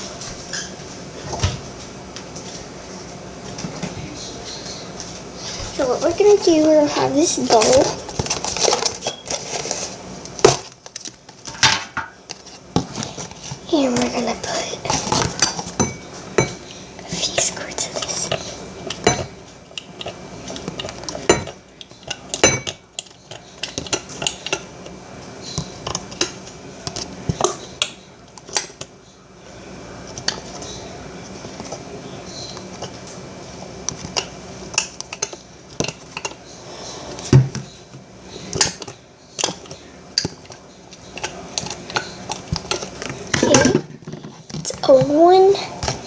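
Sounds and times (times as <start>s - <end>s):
utensil scraping in bowl: 5.4s - 10.0s, 38.3s - 45.1s.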